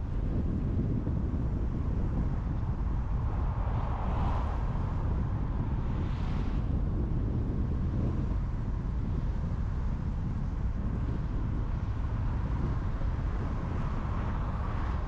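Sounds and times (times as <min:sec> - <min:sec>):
car tyres rumbling: 0:00.0 - 0:15.0
wind noise: 0:00.0 - 0:15.0.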